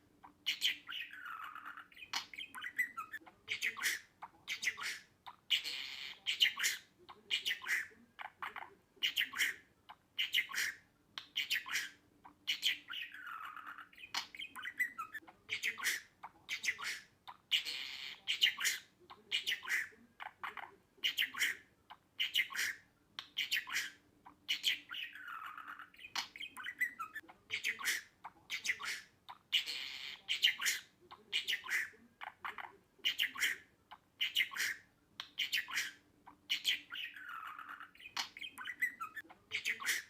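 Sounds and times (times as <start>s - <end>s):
budgerigar chirping and squawking: 0.2s - 40.0s.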